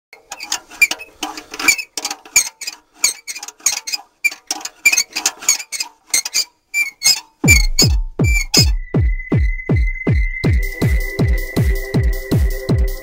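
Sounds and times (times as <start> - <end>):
electronic clicking and chirping: 6.8 - 8.9.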